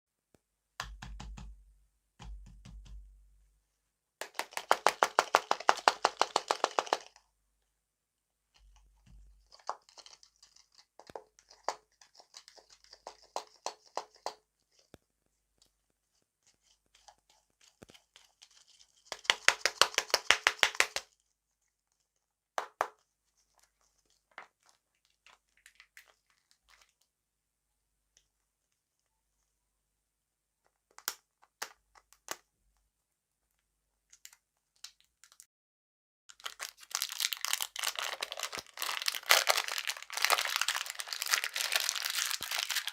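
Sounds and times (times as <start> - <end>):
candy crackling while eaten: 4.2 - 7.2, 9.0 - 14.4, 36.3 - 42.9.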